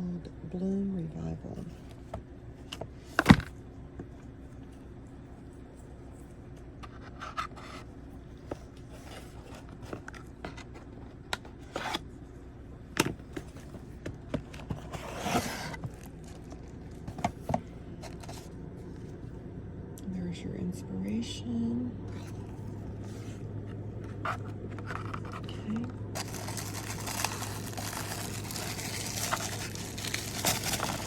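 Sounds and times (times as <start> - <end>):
cardboard box rustling: 7.1 - 12.0, 13.4 - 18.5, 24.0 - 31.0.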